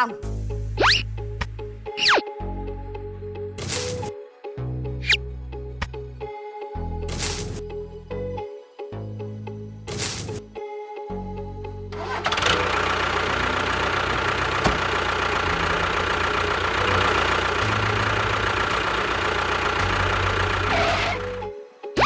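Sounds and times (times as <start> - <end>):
music playing: 0.0 - 14.3
small motor running: 9.9 - 10.4, 12.0 - 21.4.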